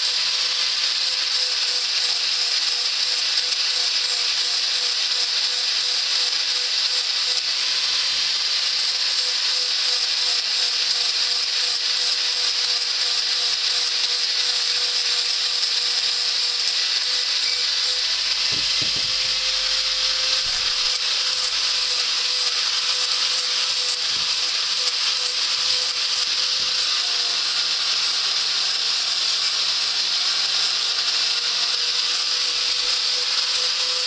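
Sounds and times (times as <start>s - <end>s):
abrasive wheel grinding steel: 6.5s - 28.1s.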